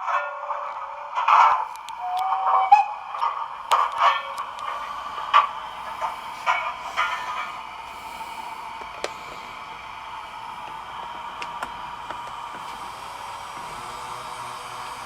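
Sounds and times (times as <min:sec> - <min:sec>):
motor drive whirring: 0:01.6 - 0:02.2, 0:03.2 - 0:15.0
mechanical clicks: 0:01.6 - 0:02.3, 0:03.2 - 0:05.4.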